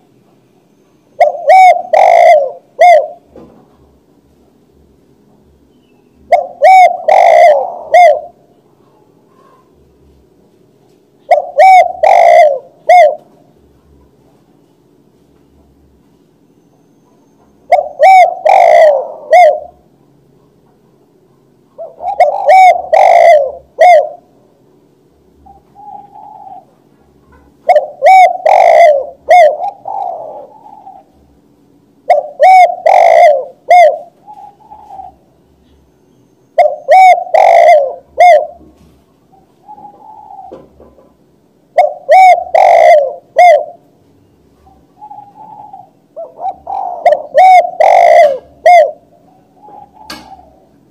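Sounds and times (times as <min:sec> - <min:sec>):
dove cooing: 0:01.2 - 0:03.3, 0:06.2 - 0:09.8, 0:11.2 - 0:14.1, 0:16.8 - 0:20.6, 0:21.8 - 0:24.4, 0:25.4 - 0:31.4, 0:32.0 - 0:43.9, 0:44.6 - 0:50.9.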